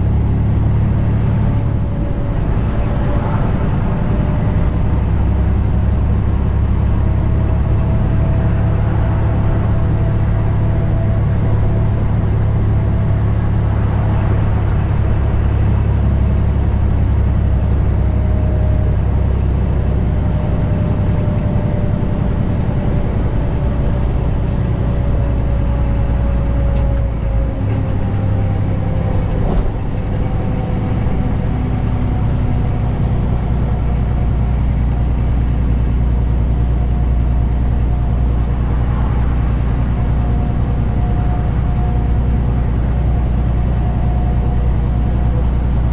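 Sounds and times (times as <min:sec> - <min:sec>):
diesel truck engine rumbling: 0:00.0 - 0:45.9.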